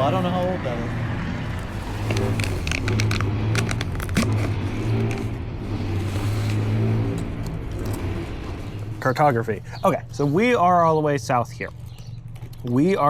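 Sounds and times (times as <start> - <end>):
engine idling: 0.0 - 13.0
sharp clicks: 2.0 - 5.2.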